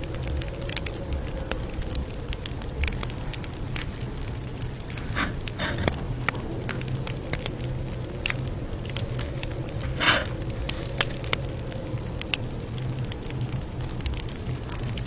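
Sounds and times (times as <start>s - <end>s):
campfire crackling: 0.0s - 15.0s
sharp pops of burning wood: 9.9s - 10.3s.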